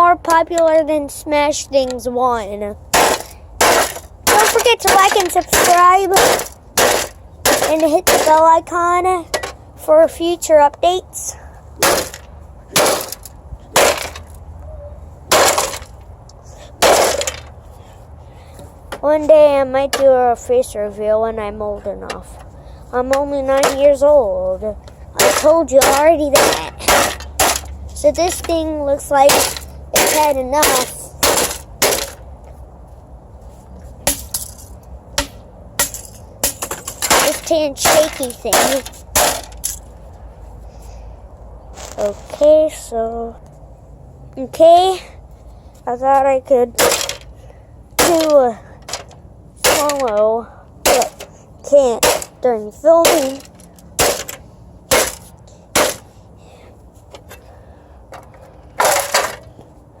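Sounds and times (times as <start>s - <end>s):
sharp blows smashing electronics: 2.9s - 8.4s, 11.8s - 14.4s, 15.3s - 16.0s, 16.8s - 17.5s, 25.2s - 28.5s, 29.2s - 32.2s, 34.0s - 39.8s, 46.8s - 47.2s, 48.0s - 50.2s, 50.8s - 51.3s, 52.0s - 52.4s, 53.0s - 56.1s
sharp cracking impacts: 2.9s - 8.7s, 11.8s - 14.5s, 15.3s - 17.6s, 24.8s - 32.4s, 34.0s - 40.0s, 46.7s - 47.3s, 48.0s - 56.2s, 58.1s - 59.5s.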